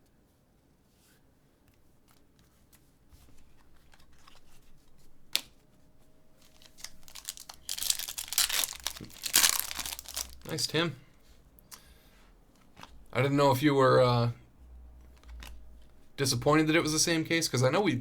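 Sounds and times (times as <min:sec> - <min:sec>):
light clicks of cards: 0:01.6 - 0:05.7, 0:15.0 - 0:16.0
card pack wrapper tearing: 0:06.4 - 0:10.6.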